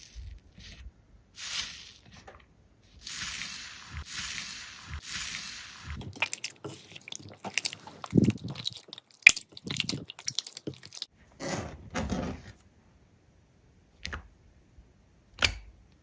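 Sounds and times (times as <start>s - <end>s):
wet squelches: 3.8s - 11.1s.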